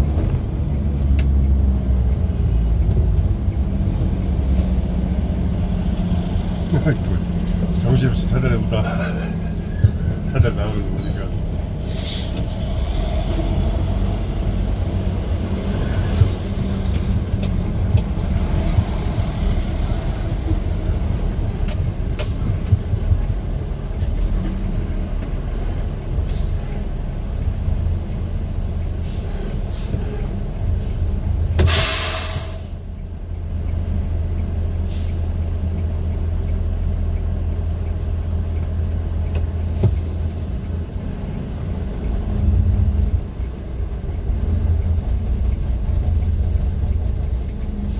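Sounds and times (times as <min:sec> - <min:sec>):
vehicle engine rumbling: 0:00.0 - 0:47.9
loud air hiss: 0:31.6 - 0:32.8.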